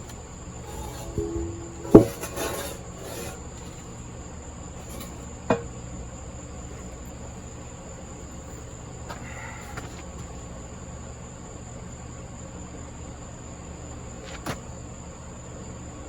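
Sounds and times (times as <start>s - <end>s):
faint hum: 0.0s - 12.6s
metal tools clanking on engine: 0.6s - 3.9s.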